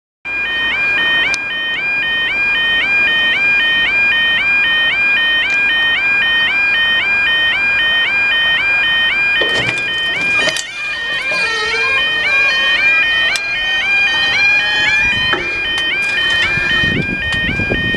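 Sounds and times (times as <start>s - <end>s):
two-tone electronic alarm warble: 0.3s - 17.9s
sharp knocks: 15.0s - 17.5s.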